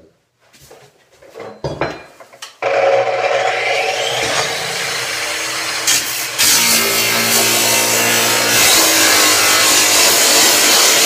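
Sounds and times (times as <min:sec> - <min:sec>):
power saw cutting: 0:02.6 - 0:11.0.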